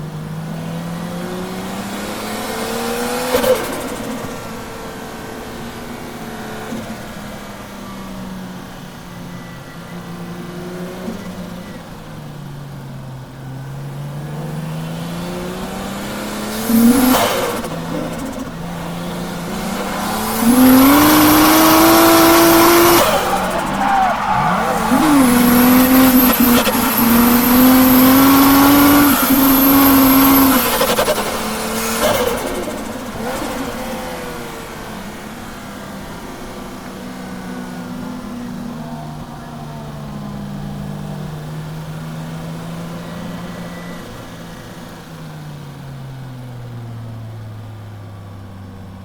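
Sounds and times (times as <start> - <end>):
car engine revving: 14.0 - 37.4
tyre squeal: 16.7 - 32.4.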